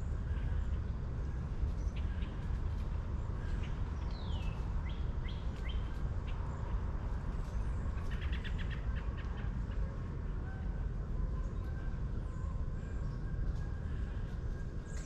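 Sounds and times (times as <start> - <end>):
small birds chirping: 0.0 - 9.8
steady low rumble: 0.0 - 15.0.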